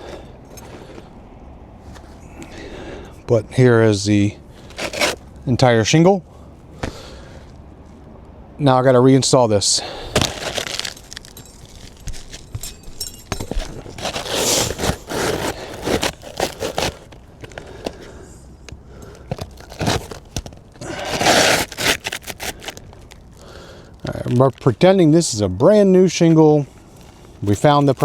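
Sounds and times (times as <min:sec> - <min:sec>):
shingle scraping against shingles: 0:04.5 - 0:05.4, 0:09.7 - 0:18.3, 0:19.0 - 0:24.9, 0:26.3 - 0:28.0.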